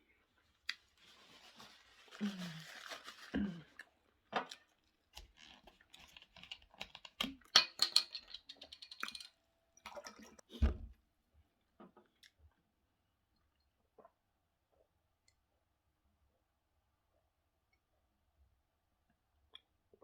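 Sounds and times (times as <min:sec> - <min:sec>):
dull thump: 0:10.6 - 0:11.0.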